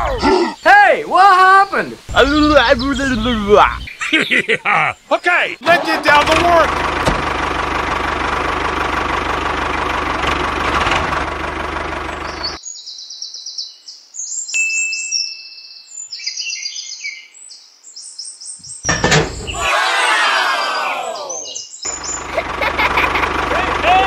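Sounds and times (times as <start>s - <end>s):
birds chirping: 0.0s - 8.0s, 12.0s - 24.0s
toy tractor engine running: 5.8s - 12.2s, 21.9s - 24.0s.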